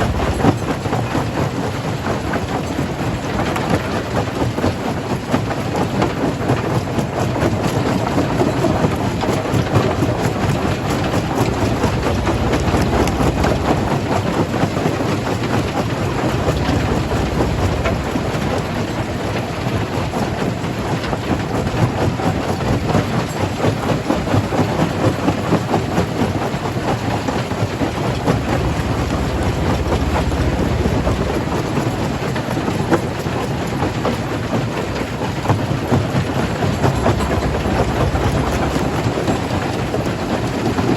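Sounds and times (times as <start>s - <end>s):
heavy machine rumble: 0.0s - 3.4s, 9.2s - 21.4s, 26.2s - 40.9s.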